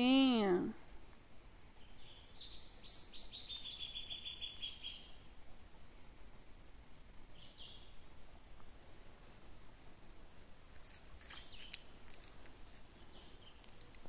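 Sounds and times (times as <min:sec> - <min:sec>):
bird singing a fast trill: 0:01.8 - 0:05.1.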